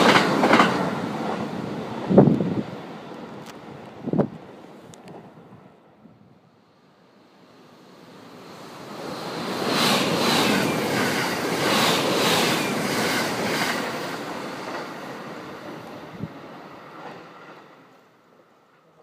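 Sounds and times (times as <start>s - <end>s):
train wheels clacking: 0.0s - 1.4s
train passing: 0.0s - 19.0s.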